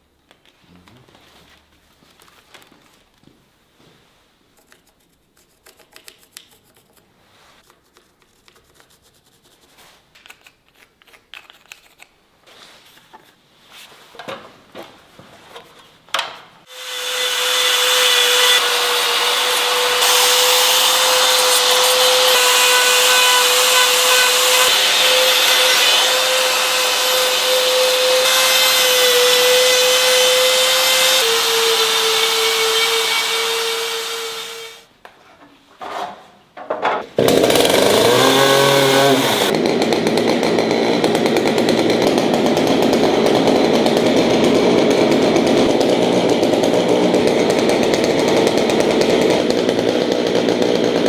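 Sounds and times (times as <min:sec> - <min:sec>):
power tool rasping wood: 0:16.7 - 0:34.8, 0:37.2 - 0:51.0.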